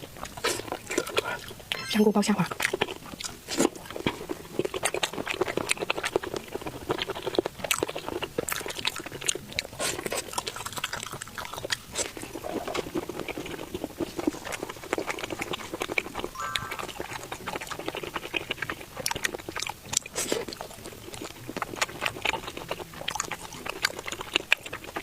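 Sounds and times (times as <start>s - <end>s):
crunchy chewing and biting: 0.0s - 1.7s, 2.5s - 25.0s.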